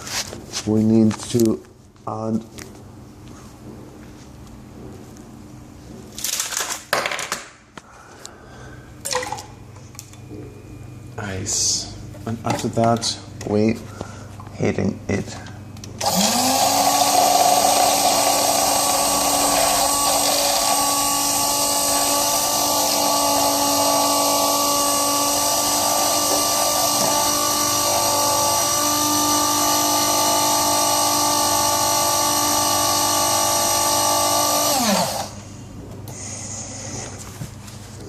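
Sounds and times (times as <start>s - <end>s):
electric drink mixer whirring: 16.0s - 35.5s.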